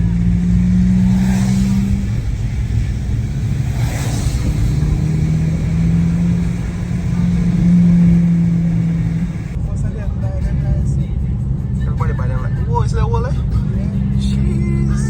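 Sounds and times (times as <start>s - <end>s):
car engine hum: 0.0s - 9.6s
road noise rumble: 0.0s - 15.0s.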